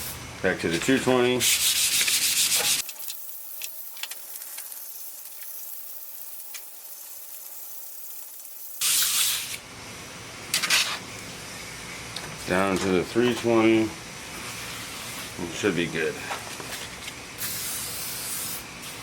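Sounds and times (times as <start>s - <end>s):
aerosol can spraying: 1.4s - 9.6s, 17.4s - 19.0s.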